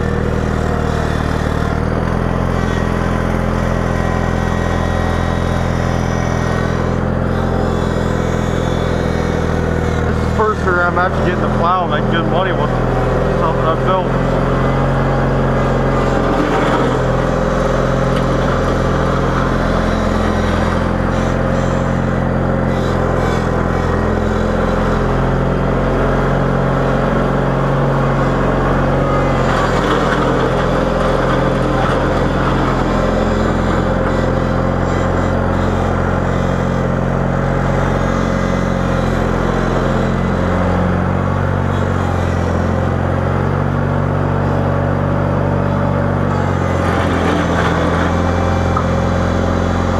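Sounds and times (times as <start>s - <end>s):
small tractor engine running: 0.0s - 49.9s.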